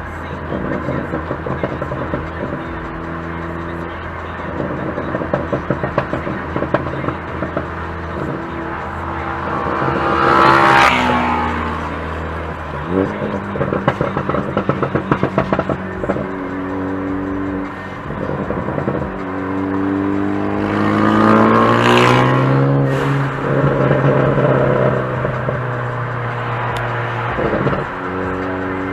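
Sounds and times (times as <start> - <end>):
minibike engine revving: 16.9 - 25.6.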